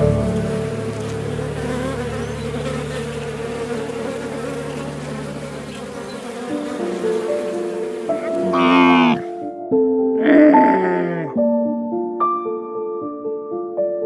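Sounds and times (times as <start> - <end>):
bees buzzing: 0.0 - 9.5.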